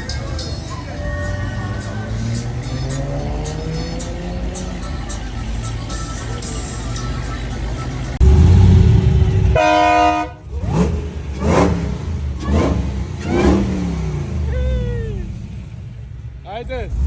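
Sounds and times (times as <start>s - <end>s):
car engine running: 0.0s - 17.0s
engine revving: 1.1s - 5.7s, 7.8s - 17.0s
car horn honk: 8.2s - 14.0s.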